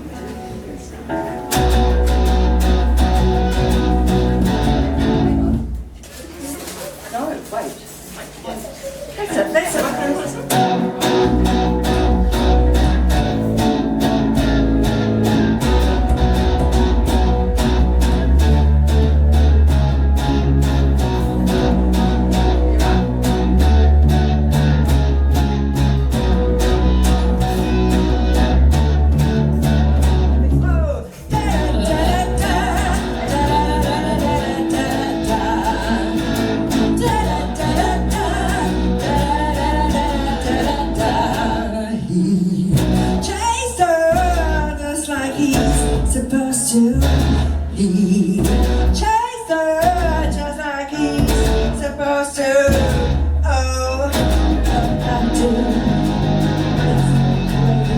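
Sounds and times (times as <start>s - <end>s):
electric guitar: 0.0s - 5.9s, 10.3s - 57.9s
bass guitar: 1.4s - 6.0s, 10.5s - 49.2s, 49.8s - 57.9s
steady drum beat: 10.6s - 30.4s.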